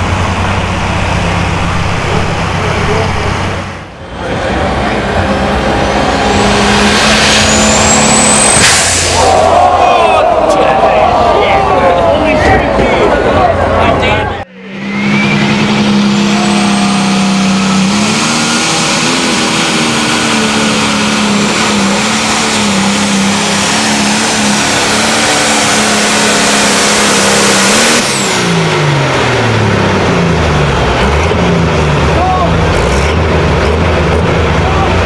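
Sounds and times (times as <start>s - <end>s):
tractor engine at high revs: 0.0s - 9.5s, 12.2s - 35.0s.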